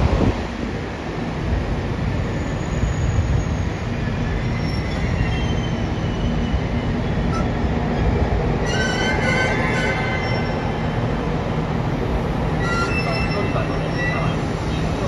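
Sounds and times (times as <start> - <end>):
train wheels rumbling on rail: 0.0 - 15.0
high-pitched wheel squealing: 8.6 - 10.9, 12.5 - 14.5.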